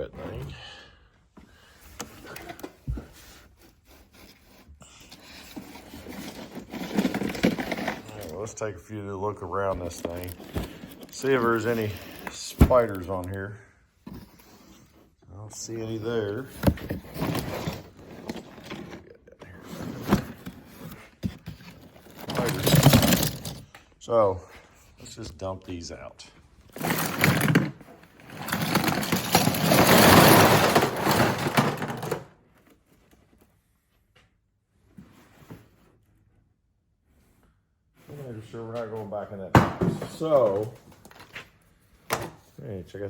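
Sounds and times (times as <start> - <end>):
rustling: 2.2 - 15.2
box scraping and rubbing: 2.4 - 8.6, 9.7 - 13.4, 14.0 - 23.6, 26.7 - 32.2
box thump: 39.5 - 40.4.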